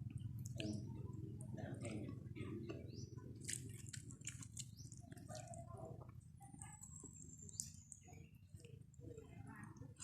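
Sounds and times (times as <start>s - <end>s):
wet chewing and mouth smacks: 0.0s - 2.0s, 2.7s - 6.2s.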